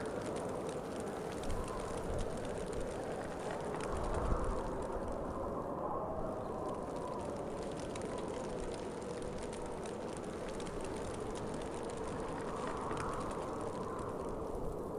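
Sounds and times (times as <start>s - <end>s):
wind blowing: 0.0s - 14.9s.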